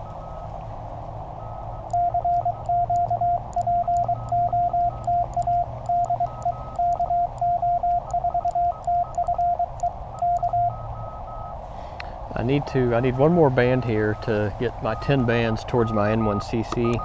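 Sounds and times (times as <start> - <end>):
receiver hiss: 0.0 - 17.0
morse code tone: 1.4 - 11.6, 12.3 - 17.0
keying clicks: 1.8 - 10.8, 16.0 - 17.0.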